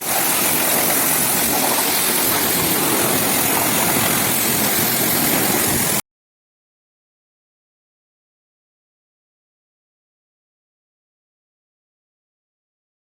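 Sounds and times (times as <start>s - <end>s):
pressure washer spraying hiss: 0.0s - 6.0s.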